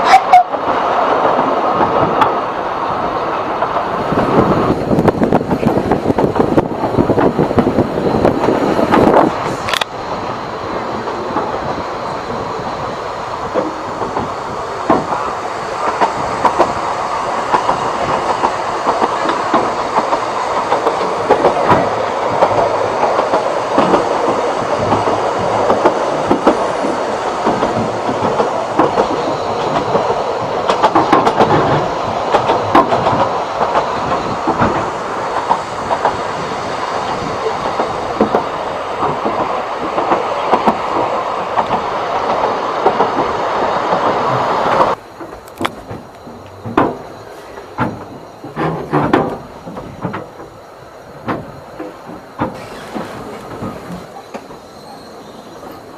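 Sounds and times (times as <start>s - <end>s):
railway carriage rumble: 0.0s - 55.9s
wheels clicking and clattering: 51.2s - 55.8s.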